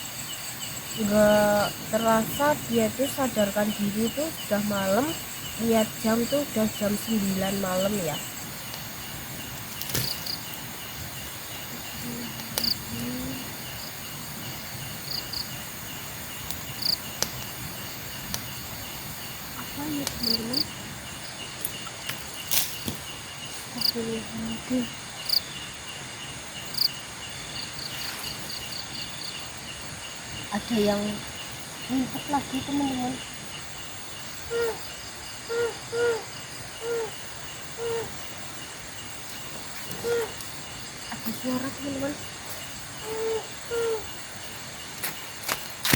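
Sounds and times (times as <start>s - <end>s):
crickets chirping: 0.0s - 45.9s
higher insect chirps: 0.0s - 45.9s
owl hooting: 34.1s - 42.2s, 42.9s - 44.4s.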